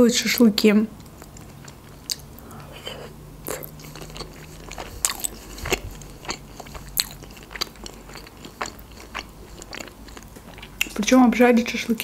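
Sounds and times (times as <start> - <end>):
person chewing food: 1.0 - 11.1.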